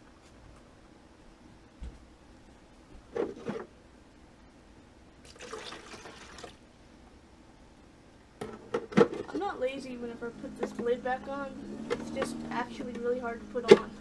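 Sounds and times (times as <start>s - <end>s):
coffee maker brewing: 5.2s - 6.6s
liquid gurgling into cup: 5.3s - 6.6s.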